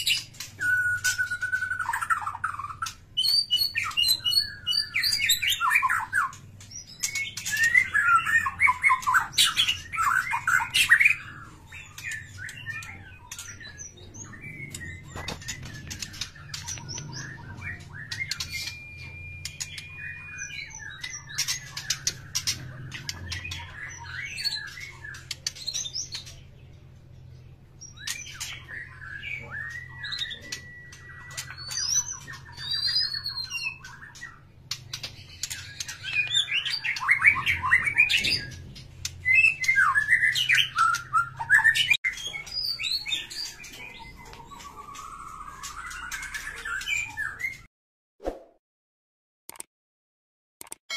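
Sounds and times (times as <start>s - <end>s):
small birds chirping: 0.0s - 47.7s
scattered clicks: 49.5s - 49.7s, 50.6s - 50.9s.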